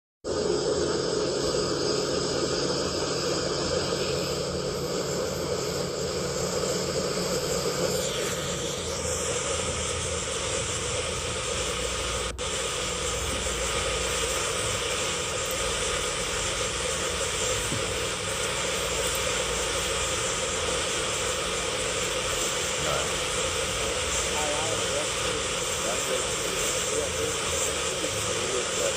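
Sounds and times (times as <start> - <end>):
engine running: 0.3 - 28.9
loud hiss: 0.3 - 28.9.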